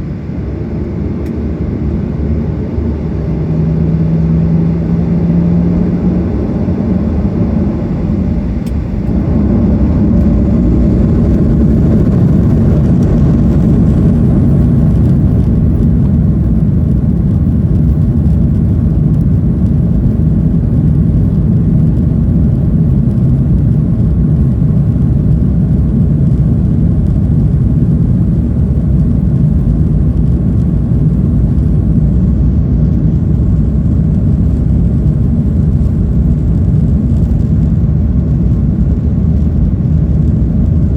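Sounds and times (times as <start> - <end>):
jet engine rumble inside cabin: 0.0 - 40.9.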